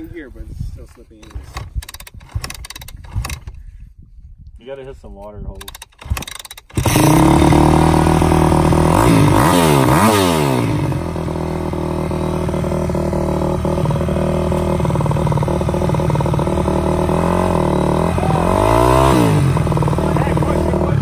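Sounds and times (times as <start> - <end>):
dirt bike engine revving and idling: 5.7 - 21.0.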